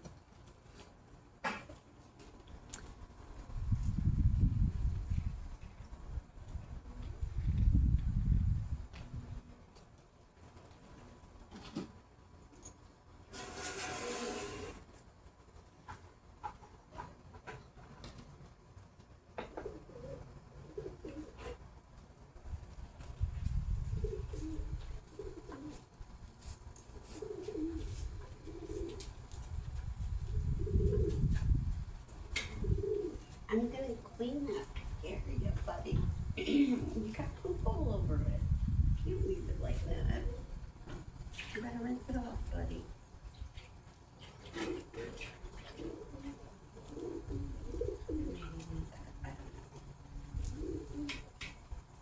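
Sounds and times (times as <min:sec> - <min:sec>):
steady low rumble: 0:03.3 - 0:09.5
pigeon cooing: 0:19.4 - 0:21.6, 0:23.9 - 0:26.0, 0:26.9 - 0:29.2, 0:30.2 - 0:31.6, 0:32.2 - 0:37.4, 0:39.0 - 0:40.8, 0:44.1 - 0:51.7.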